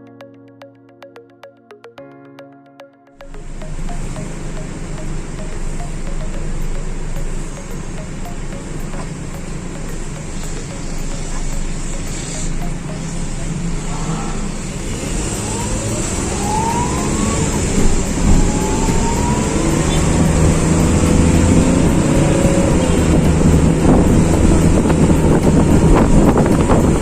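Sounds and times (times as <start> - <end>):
short rising tones: 0.2 - 25.2
engine rumble: 6.6 - 27.0.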